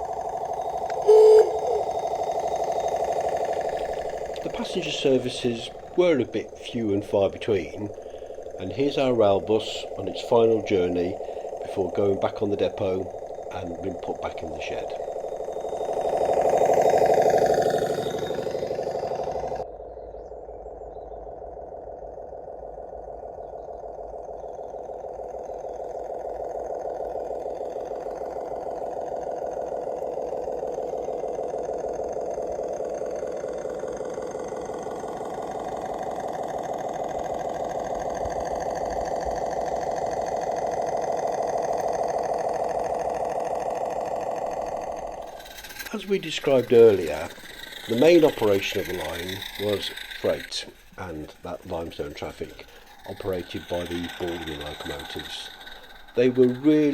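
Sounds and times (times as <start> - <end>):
model rail bus diesel engine chugging: 0.0 - 19.6, 34.8 - 56.9.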